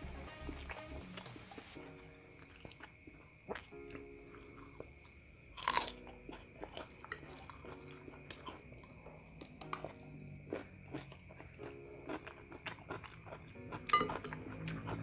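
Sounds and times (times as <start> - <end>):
crackers crunching: 0.5 - 15.0.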